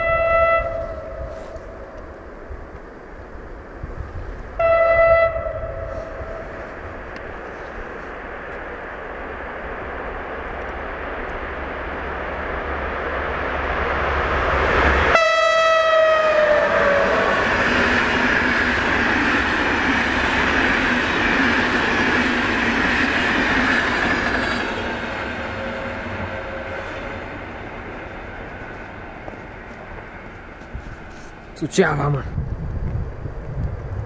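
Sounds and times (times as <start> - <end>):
train horn: 0.0 - 1.8, 4.6 - 6.6, 15.1 - 17.6, 25.3 - 27.1
train rumbling past: 0.0 - 34.0.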